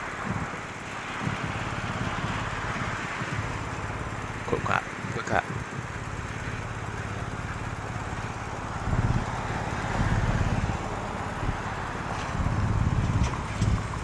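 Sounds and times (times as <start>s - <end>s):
vehicle engines in traffic: 0.0s - 14.0s.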